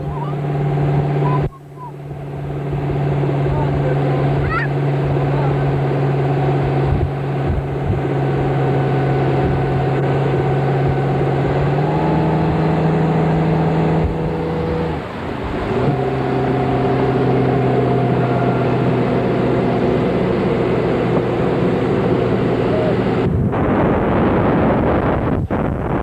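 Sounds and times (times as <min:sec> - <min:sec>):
motorboat engine running: 0:00.0 - 0:26.0.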